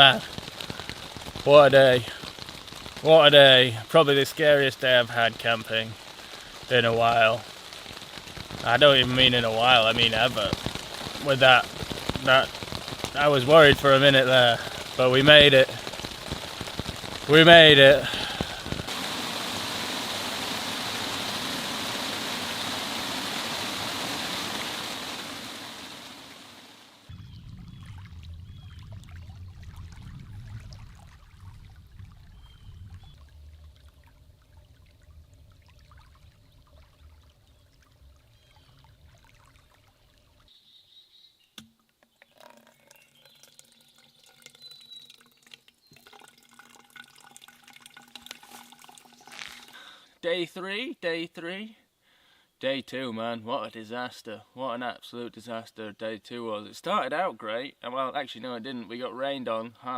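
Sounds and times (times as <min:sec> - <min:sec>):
heavy rain falling: 0:00.0 - 0:37.6
low rumble: 0:27.1 - 0:40.3.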